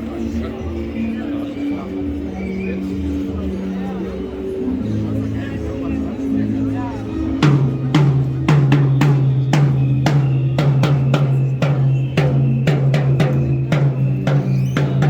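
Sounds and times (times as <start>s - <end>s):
drums playing steady beat: 7.4s - 15.0s.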